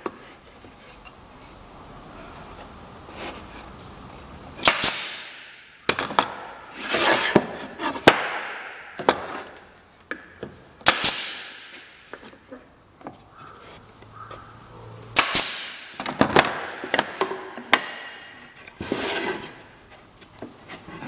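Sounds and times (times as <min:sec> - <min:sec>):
wood rubbing and scraping: 0:00.0 - 0:04.6, 0:06.0 - 0:09.9, 0:16.1 - 0:21.0.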